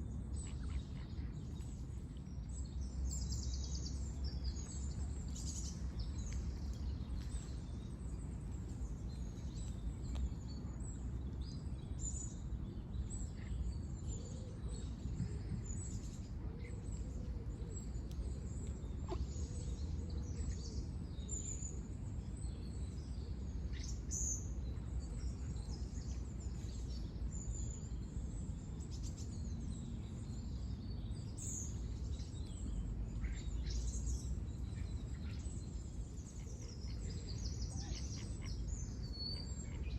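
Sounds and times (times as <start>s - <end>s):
low background rumble: 0.0s - 39.9s
small birds chirping: 17.7s - 39.9s.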